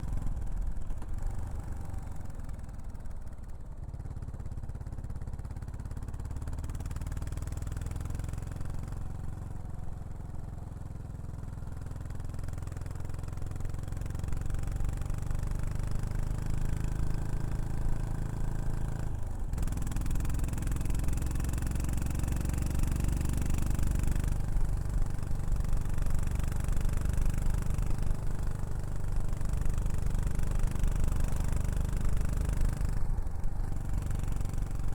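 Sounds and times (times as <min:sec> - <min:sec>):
motorcycle engine low exhaust note: 0:00.0 - 0:34.9.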